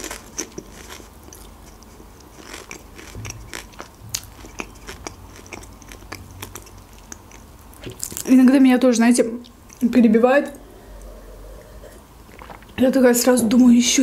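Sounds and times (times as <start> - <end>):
small crust crunches: 0.0 - 8.3
chewing crisp pie: 0.0 - 8.4.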